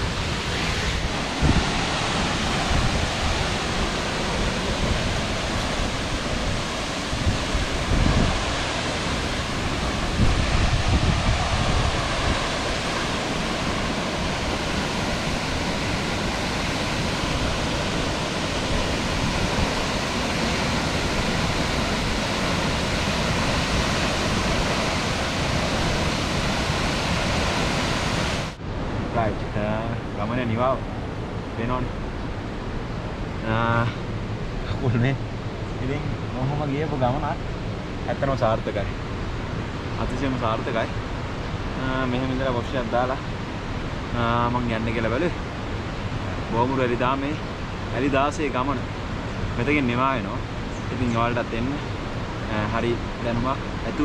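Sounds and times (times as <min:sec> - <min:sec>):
waterfall rushing: 0:00.0 - 0:28.6
wind buffeting microphone: 0:00.0 - 0:29.5.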